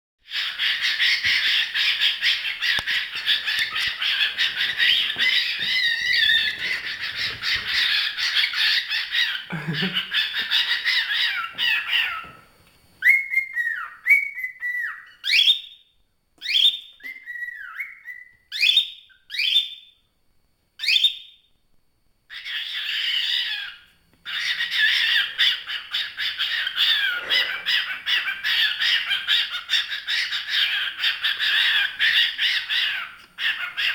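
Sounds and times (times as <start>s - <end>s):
swooping whistled bird calls: 0.3s - 9.4s, 13.0s - 15.8s, 16.4s - 20.0s
bird chattering chirps: 0.3s - 12.3s.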